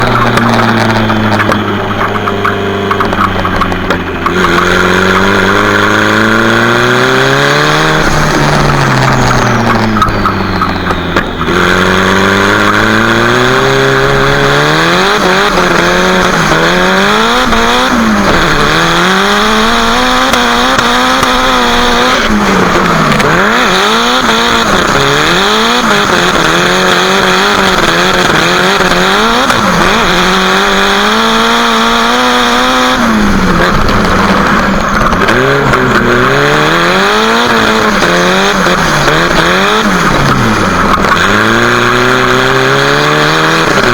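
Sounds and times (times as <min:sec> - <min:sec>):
car engine revving hard: 0:00.0 - 0:43.9.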